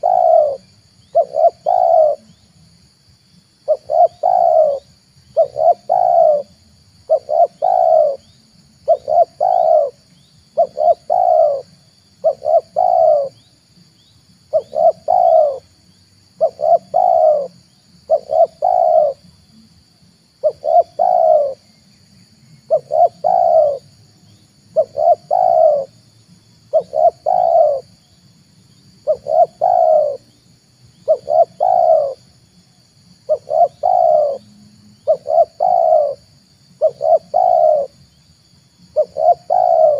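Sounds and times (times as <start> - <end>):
dove cooing: 0.0 - 2.4, 3.6 - 13.4, 14.5 - 19.4, 20.4 - 21.7, 22.6 - 26.1, 26.7 - 28.0, 29.0 - 30.4, 31.0 - 32.4, 33.2 - 38.0, 38.9 - 39.9.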